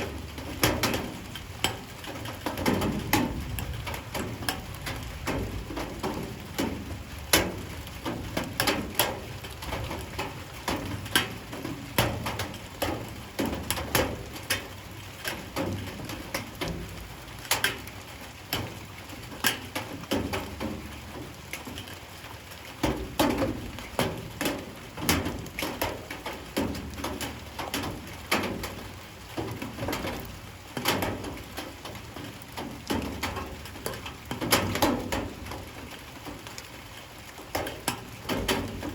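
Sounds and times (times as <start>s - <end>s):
drips striking hard surface: 0.0s - 9.2s
light rain patter: 0.0s - 38.9s.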